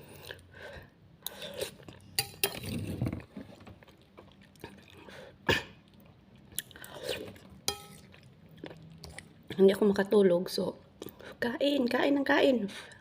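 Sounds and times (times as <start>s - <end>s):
person chewing noodles: 1.2s - 9.6s.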